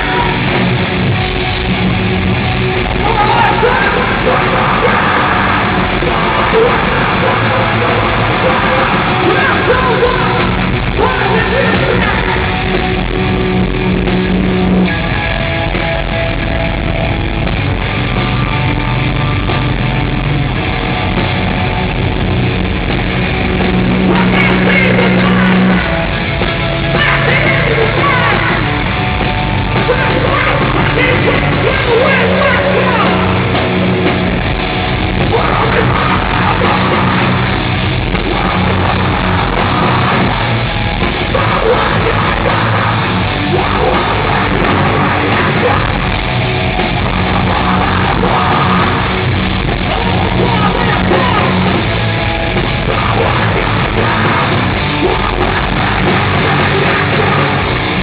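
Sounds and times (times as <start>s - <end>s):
bass guitar: 0.0s - 58.0s
distorted guitars: 0.0s - 58.0s
drums: 0.0s - 58.0s
person shouting vocals: 3.0s - 12.6s, 24.1s - 25.8s, 27.0s - 28.7s, 29.8s - 33.4s, 35.2s - 37.4s, 41.3s - 46.1s, 49.8s - 51.7s.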